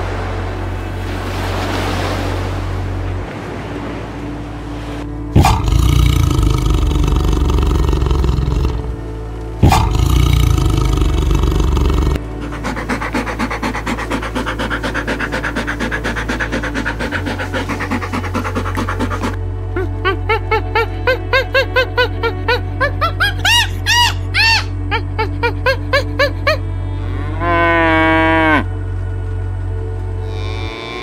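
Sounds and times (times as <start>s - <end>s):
background music: 0.0s - 31.0s
pulsing animal call: 5.3s - 28.8s, 30.2s - 31.0s
large animal roaring: 5.4s - 19.4s.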